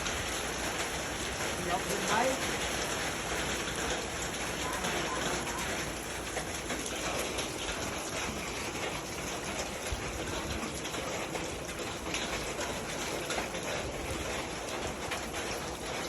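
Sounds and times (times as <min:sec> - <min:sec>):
rain patter: 0:00.0 - 0:16.0.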